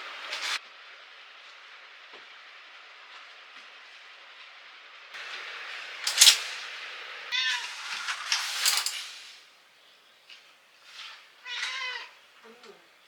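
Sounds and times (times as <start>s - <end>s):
rushes of hissy noise: 5.2s - 10.0s
cat meowing: 7.3s - 7.9s, 11.0s - 12.8s.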